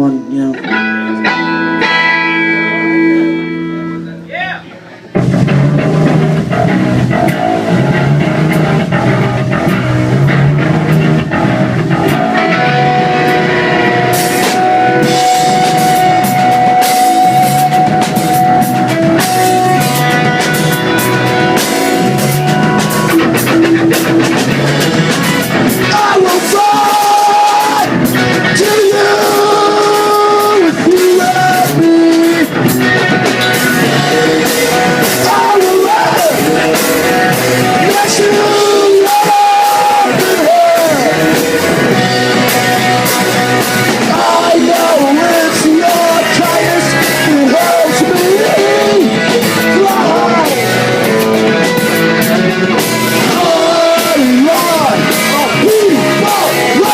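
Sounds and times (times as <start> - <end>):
live rock band playing: 0.0 - 56.9
person singing: 25.7 - 56.9.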